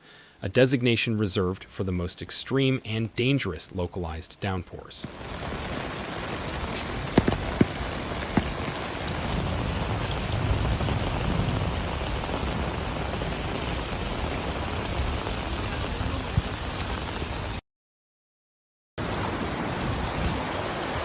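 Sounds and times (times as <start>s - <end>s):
heavy rain on hard surfaces: 5.0s - 17.6s, 19.0s - 21.0s.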